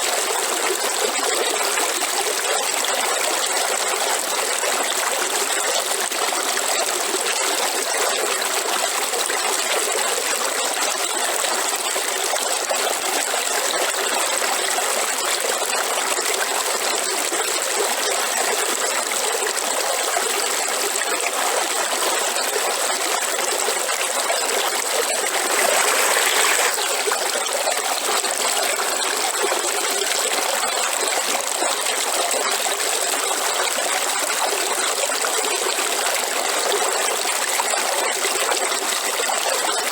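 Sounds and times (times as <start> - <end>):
water gushing: 0.0 - 39.9
river water flowing: 19.4 - 38.6.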